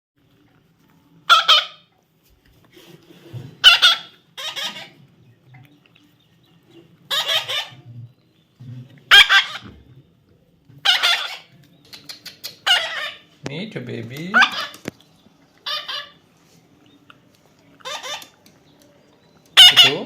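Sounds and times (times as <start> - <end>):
parrot squawks: 1.3 - 1.9, 3.6 - 5.0, 7.1 - 7.8, 9.1 - 9.8, 10.8 - 11.5, 12.4 - 13.3, 14.3 - 14.9, 15.6 - 16.2, 17.8 - 18.4, 19.6 - 20.0.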